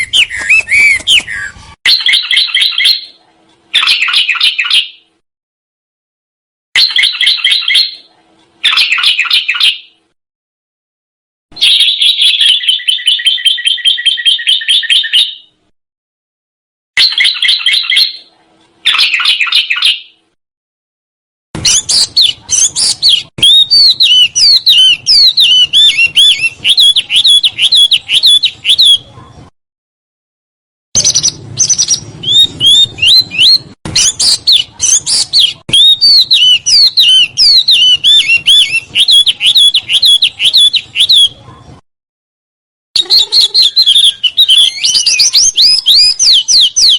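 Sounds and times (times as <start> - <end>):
songbird trilling and chattering: 31.0 - 41.3.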